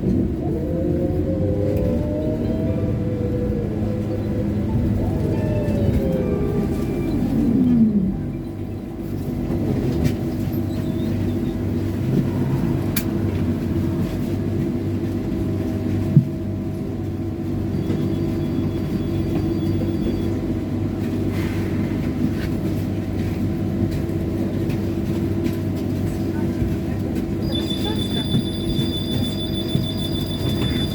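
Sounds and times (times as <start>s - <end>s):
low rumble: 0.0s - 17.4s
trolleybus electric whine: 0.0s - 30.9s.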